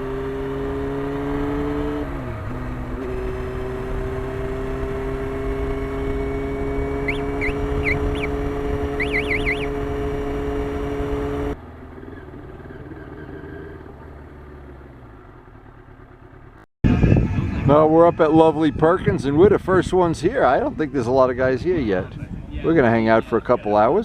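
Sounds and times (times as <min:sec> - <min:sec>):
motorcycle engine cruising: 0:00.0 - 0:24.0
road and wind noise: 0:00.0 - 0:24.0
quick high chirps: 0:07.0 - 0:09.8.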